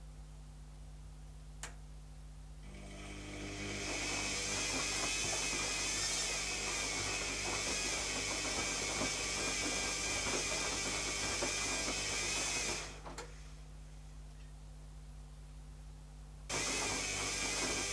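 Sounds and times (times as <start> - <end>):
washing machine running: 2.6 - 13.5, 16.5 - 17.9.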